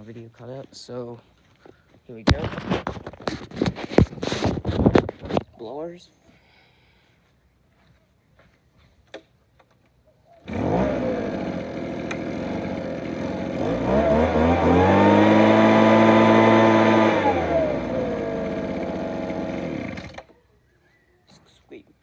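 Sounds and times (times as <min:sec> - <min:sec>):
leaf blower engine: 0:10.4 - 0:20.3.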